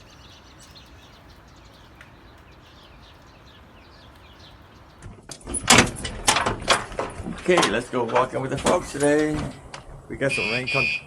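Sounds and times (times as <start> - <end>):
small birds chirping: 0.0 - 5.3.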